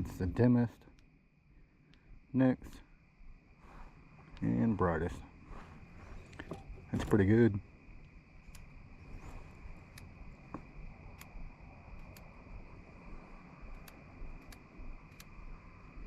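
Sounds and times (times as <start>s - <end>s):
insects chirring: 0.0s - 16.0s
faint sharp clicks: 1.8s - 2.1s, 8.0s - 8.7s, 9.8s - 12.4s, 13.6s - 15.6s.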